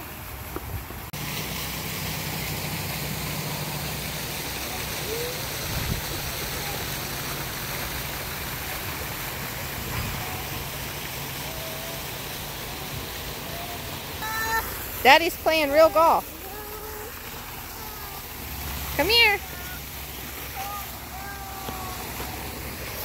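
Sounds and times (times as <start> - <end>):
water rushing from waterfall: 0.0 - 23.0.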